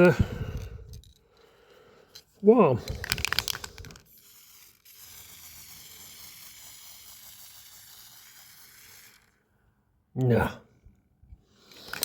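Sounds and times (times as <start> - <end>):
aerosol can rattle: 2.8 - 9.4
spray paint hiss: 3.7 - 9.4.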